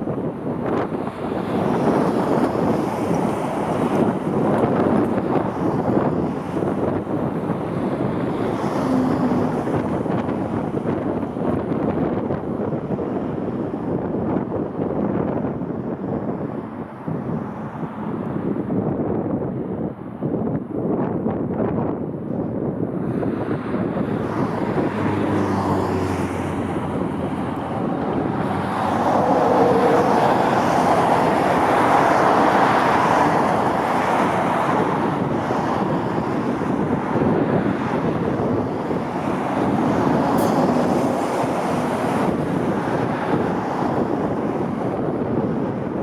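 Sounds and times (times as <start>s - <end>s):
wind buffeting microphone: 0.0s - 46.0s
jet airliner passing: 23.4s - 44.3s.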